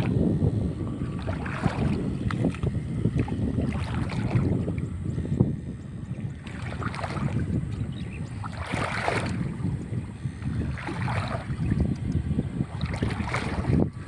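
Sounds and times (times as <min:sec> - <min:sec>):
water splashing: 0:00.0 - 0:05.0, 0:06.4 - 0:14.0
wind rumbling on microphone: 0:00.0 - 0:14.0.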